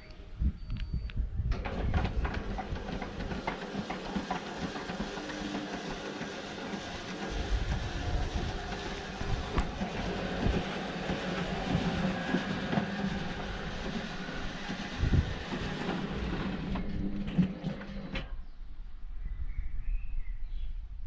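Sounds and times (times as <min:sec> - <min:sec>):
knocks and rattles: 0:01.5 - 0:18.3
machine running: 0:01.5 - 0:18.3
faint bird chirps: 0:18.4 - 0:21.0.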